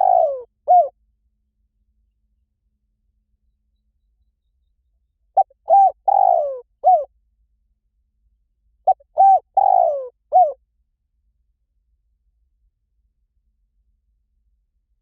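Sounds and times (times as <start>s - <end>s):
dove cooing: 0.0s - 0.9s, 5.4s - 7.1s, 8.9s - 10.6s.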